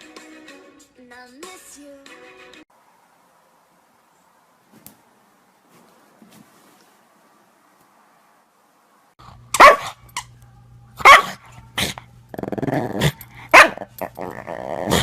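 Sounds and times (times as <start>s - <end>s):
dog barking loudly: 9.5s - 10.0s, 11.0s - 11.4s, 13.5s - 14.2s
dog growling: 11.8s - 15.0s.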